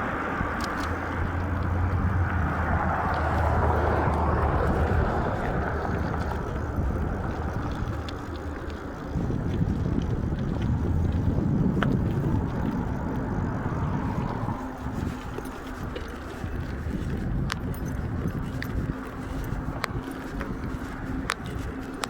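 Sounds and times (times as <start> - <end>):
road noise: 0.0 - 22.0
wind rushing over microphone: 0.0 - 22.0.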